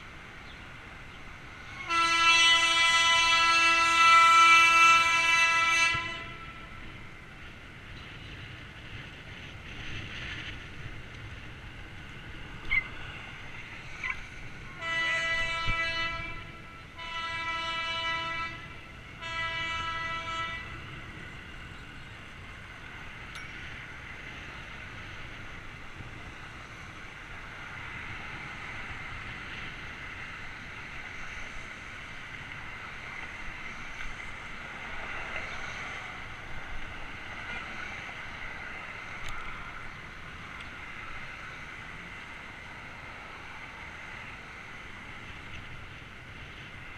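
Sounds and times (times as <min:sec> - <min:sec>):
ride background noise: 0:00.0 - 0:46.9
horn blasts: 0:01.8 - 0:06.8, 0:14.8 - 0:20.9.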